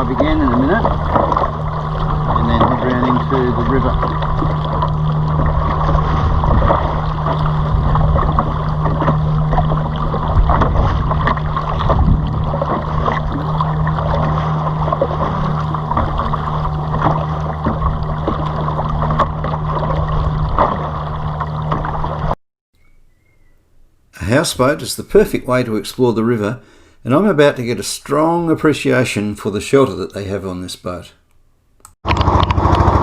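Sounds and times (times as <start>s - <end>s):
outboard motor running: 0.0s - 22.4s, 32.0s - 33.0s
water noise: 0.0s - 22.4s, 32.0s - 33.0s
wind: 0.0s - 33.0s.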